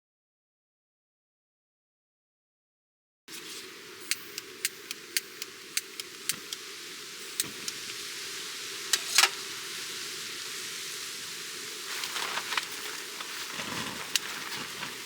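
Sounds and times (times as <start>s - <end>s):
wood fire crackling: 3.4s - 15.0s.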